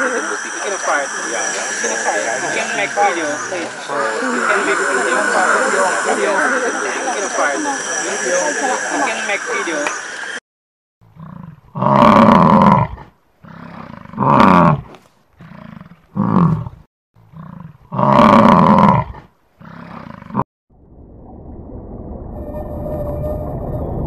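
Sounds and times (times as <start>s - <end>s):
wildebeest calling: 0.0s - 9.9s.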